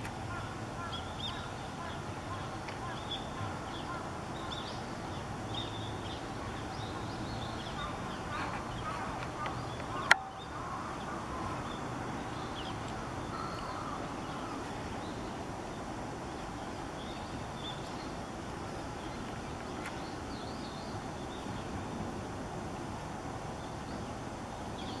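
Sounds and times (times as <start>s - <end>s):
steady outdoor background: 0.0s - 25.0s
small birds chirping: 0.3s - 21.8s.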